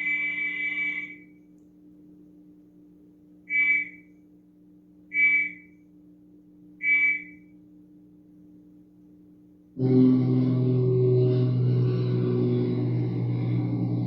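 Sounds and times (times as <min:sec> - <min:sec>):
faint steady hum: 0:00.0 - 0:14.0
high-pitched chirps: 0:03.5 - 0:04.1, 0:05.2 - 0:05.7.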